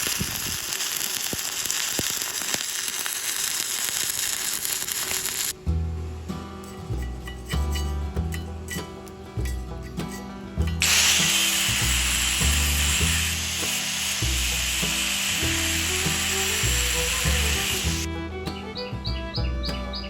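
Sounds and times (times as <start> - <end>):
welding arc hissing: 0.0 - 5.6, 10.8 - 18.1
background music: 5.6 - 20.0.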